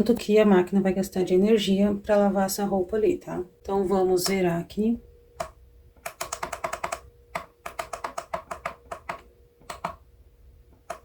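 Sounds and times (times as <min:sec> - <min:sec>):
faint steady hum: 0:00.0 - 0:11.0
plastic push buttons clicking: 0:05.4 - 0:10.0, 0:10.8 - 0:11.0.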